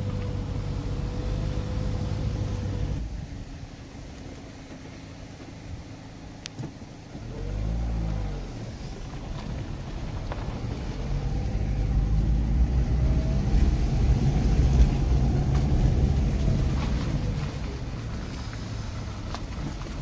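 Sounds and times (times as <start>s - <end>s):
car engine and road rumble: 0.0s - 20.0s
engine note rising and falling: 10.4s - 18.9s.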